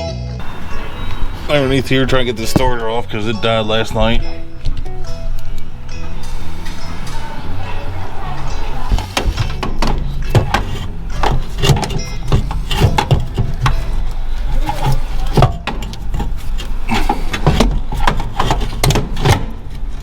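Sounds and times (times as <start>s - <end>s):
steady low hum: 0.4s - 20.0s
hand tools knocking on metal: 8.8s - 20.0s.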